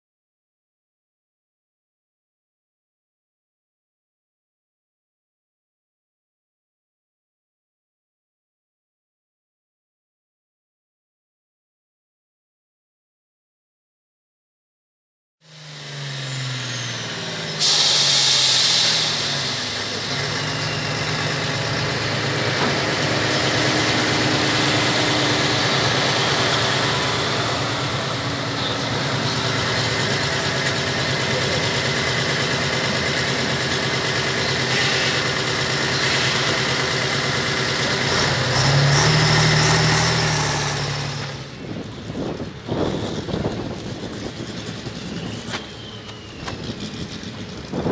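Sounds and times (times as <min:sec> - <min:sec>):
diesel engine under load: 0:15.4 - 0:47.9
burst of hiss: 0:17.6 - 0:20.0.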